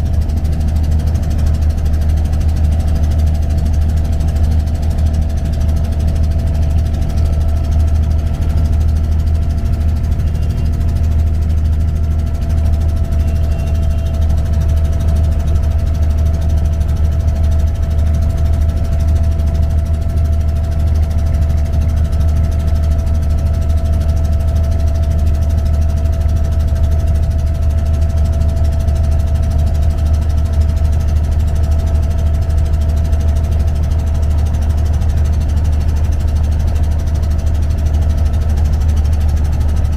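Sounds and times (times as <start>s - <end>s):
diesel boat engine rumbling: 0.0s - 39.9s.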